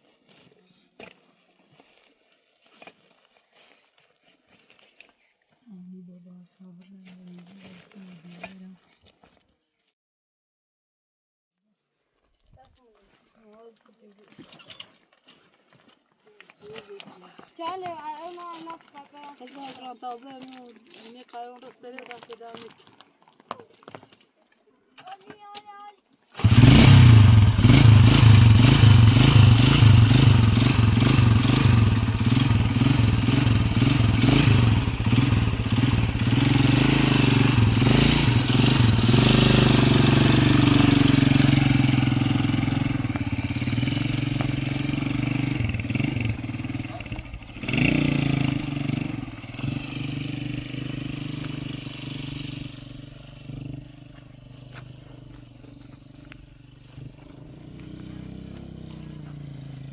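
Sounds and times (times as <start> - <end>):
vehicle engine running: 26.4 - 59.9.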